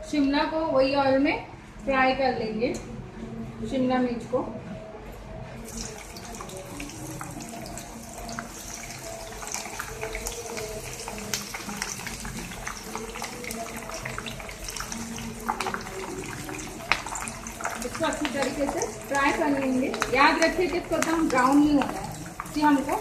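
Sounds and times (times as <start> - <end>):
vegetables sizzling in hot oil: 5.6 - 23.0.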